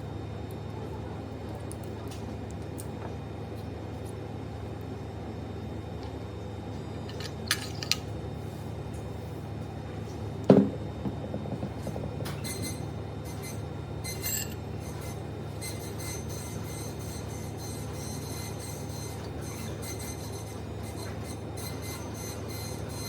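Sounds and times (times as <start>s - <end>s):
steady low hum: 0.0s - 23.0s
metal parts clinking: 7.1s - 8.1s, 14.1s - 14.6s.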